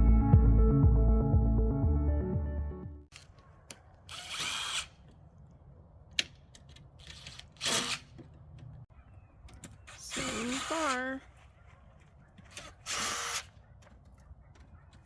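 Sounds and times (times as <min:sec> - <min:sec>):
background music: 0:00.0 - 0:03.1
power drill bursts: 0:04.1 - 0:04.9, 0:07.6 - 0:08.1, 0:09.9 - 0:11.0, 0:12.5 - 0:13.5.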